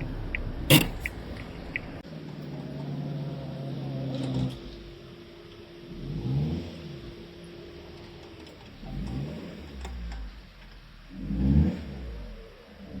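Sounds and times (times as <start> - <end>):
sharp click: 0.0 - 1.9
car engine hum: 0.0 - 13.0.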